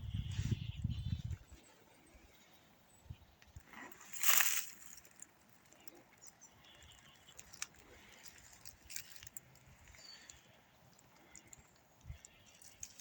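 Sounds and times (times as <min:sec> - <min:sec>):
faint rustles: 0:03.5 - 0:13.0
faint clicks: 0:04.3 - 0:13.0.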